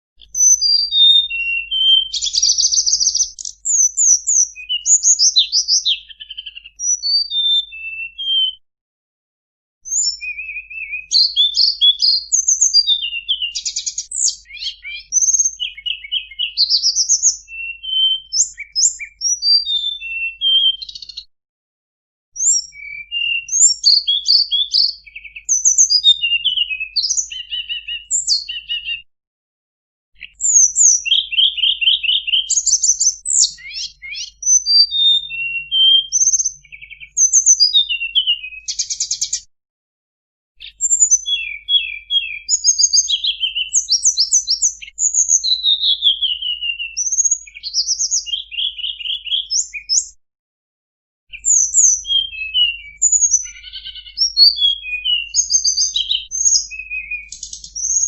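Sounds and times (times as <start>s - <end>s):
bird singing chirps and trills: 0.2s - 8.6s, 9.8s - 21.3s, 22.4s - 29.1s, 30.2s - 39.5s, 40.6s - 50.2s, 51.3s - 58.0s.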